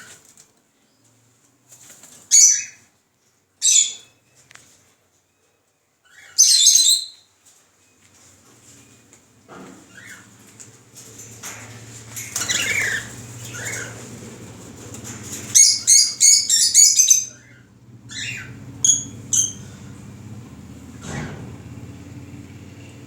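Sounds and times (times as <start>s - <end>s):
small birds chirping: 3.6s - 4.8s, 5.4s - 7.3s, 9.8s - 21.2s
rustling: 7.4s - 16.2s
bird squawks: 12.2s - 14.2s, 15.5s - 19.8s.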